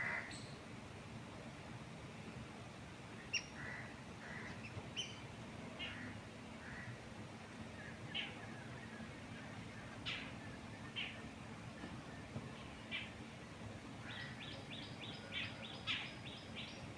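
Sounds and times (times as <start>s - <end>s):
wind in trees: 0.0s - 16.9s
birds chirping: 14.0s - 16.9s.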